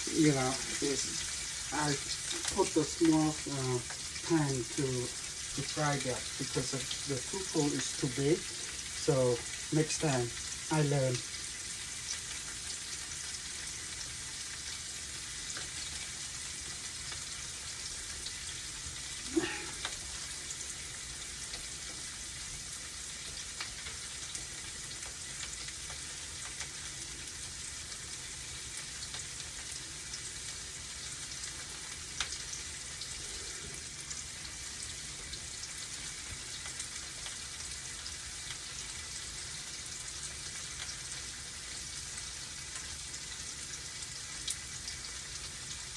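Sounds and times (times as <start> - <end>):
tofu sizzling in oil: 0.0 - 45.9.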